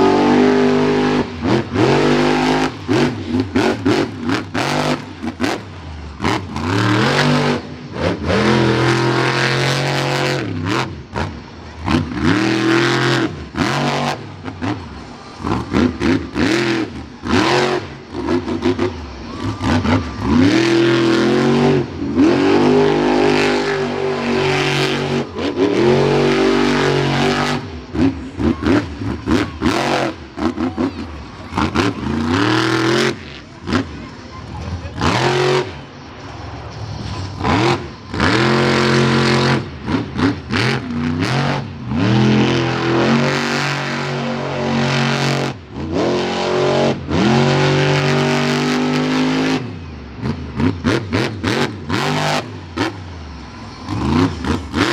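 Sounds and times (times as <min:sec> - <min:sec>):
monster truck engine revving: 0:00.0 - 0:54.9.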